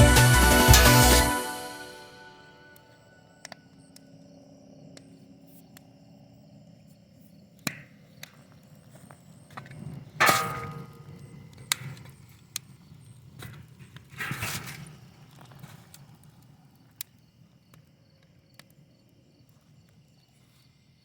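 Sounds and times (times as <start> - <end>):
loud metal clang ringing: 10.2 - 11.0.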